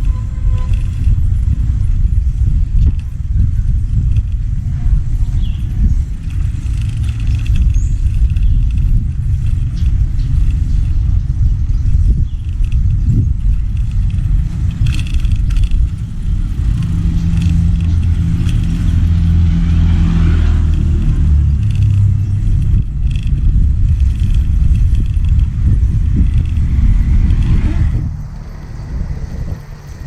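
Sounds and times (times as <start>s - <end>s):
vehicle engine rumble: 0.0s - 30.0s
wind buffeting microphone: 0.0s - 30.0s.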